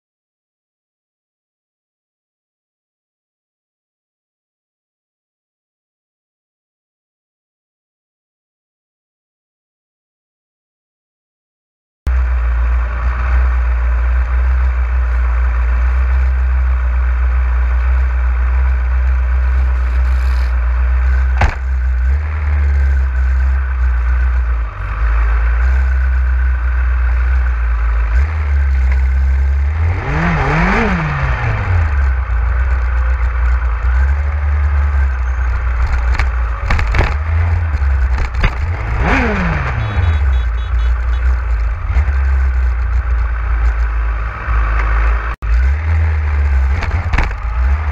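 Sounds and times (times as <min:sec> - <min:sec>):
motorcycle engine revving: 0:12.1 - 0:47.9.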